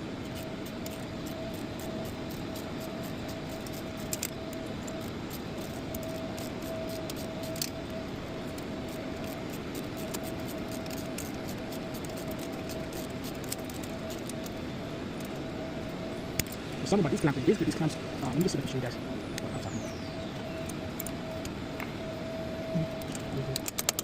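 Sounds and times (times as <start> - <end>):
steady mechanical hum: 0.0 - 24.0
metallic clicks of parts handled: 3.3 - 7.8, 23.0 - 24.0.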